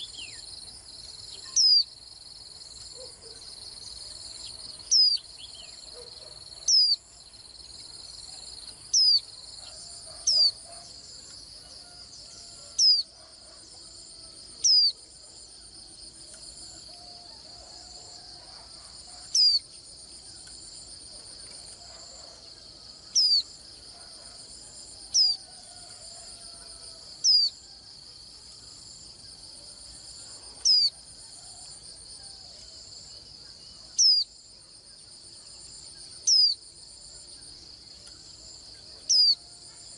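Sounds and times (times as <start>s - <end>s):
insects droning: 0.0s - 39.9s
bird high-pitched calls: 9.0s - 10.8s.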